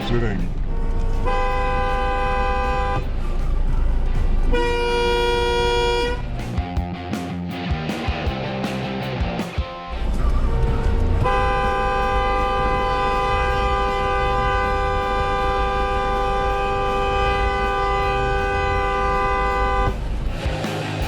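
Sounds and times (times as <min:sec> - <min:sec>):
two-tone car horn blast: 0:01.2 - 0:03.1, 0:04.5 - 0:06.3, 0:11.2 - 0:20.0
low car rumble: 0:10.0 - 0:21.0.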